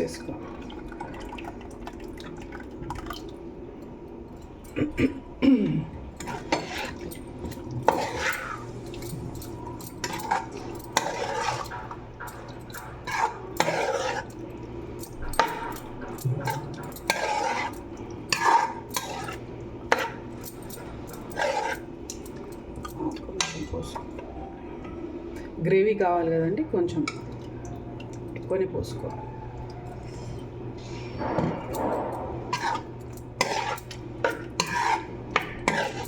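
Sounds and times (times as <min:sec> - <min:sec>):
spoon scraping and clinking bowl: 0:06.2 - 0:14.4, 0:15.0 - 0:23.6, 0:31.6 - 0:36.0.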